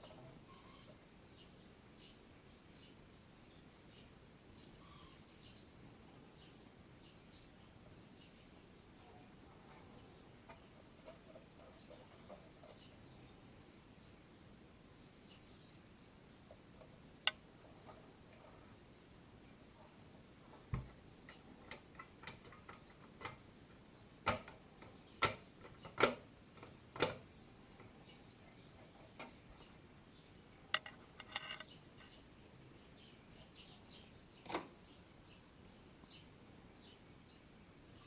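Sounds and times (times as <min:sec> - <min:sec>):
clicks and knocks of radio parts: 0:30.8 - 0:31.7.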